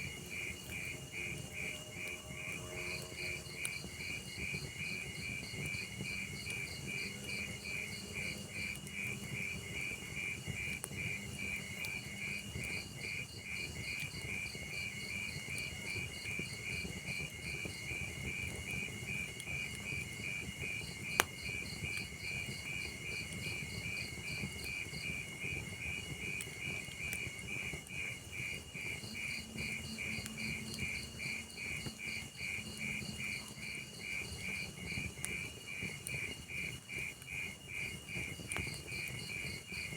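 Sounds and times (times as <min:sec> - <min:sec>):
crickets chirping: 0:00.0 - 0:39.9
log fire crackling: 0:00.0 - 0:39.9
sharp pop from fire: 0:21.1 - 0:21.4.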